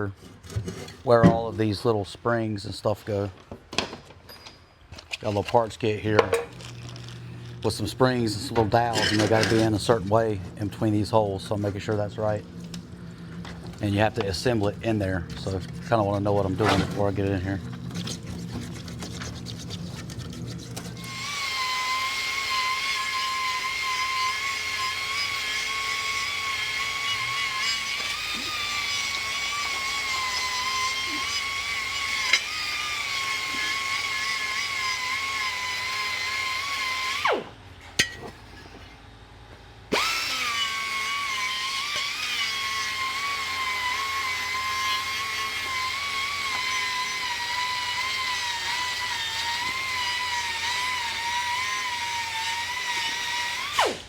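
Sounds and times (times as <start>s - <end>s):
power tool whining: 6.5s - 37.6s, 39.9s - 54.0s.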